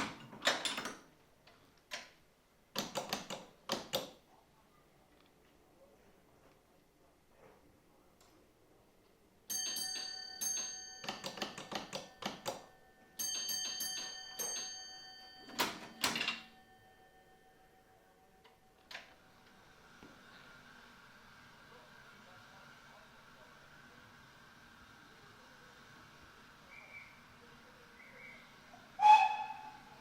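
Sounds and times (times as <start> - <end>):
block bell ringing: 9.5 - 18.8.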